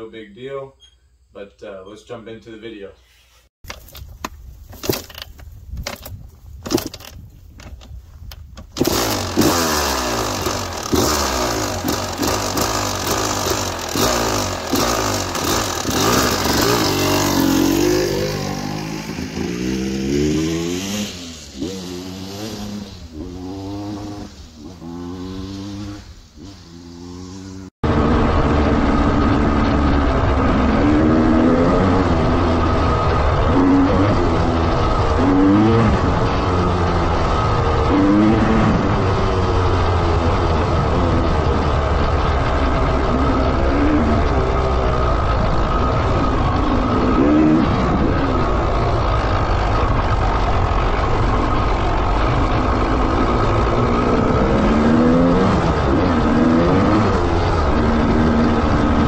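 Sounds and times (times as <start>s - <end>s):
dirt bike kick start knocks: 3.6s - 9.6s
two-stroke dirt bike engine revving: 8.8s - 59.0s.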